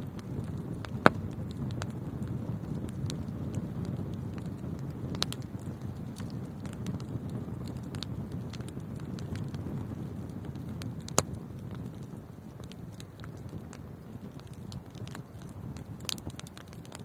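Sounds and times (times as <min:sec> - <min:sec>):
fire flames rumbling: 0:00.0 - 0:17.0
small fire crackles: 0:00.0 - 0:17.0
loud fire pop: 0:00.4 - 0:01.9.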